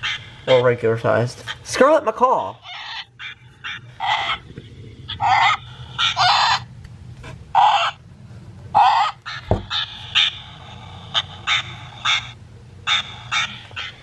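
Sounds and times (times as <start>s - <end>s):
toy speaker parrot squawks: 0.0s - 0.7s, 2.4s - 4.5s, 5.1s - 6.7s, 7.6s - 8.0s, 8.8s - 14.0s
low thump: 9.5s - 9.7s.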